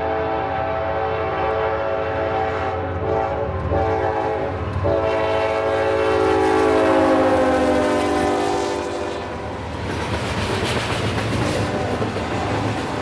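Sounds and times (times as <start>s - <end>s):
locomotive air horn chord: 0.0s - 9.5s
train rumbling: 0.0s - 13.0s.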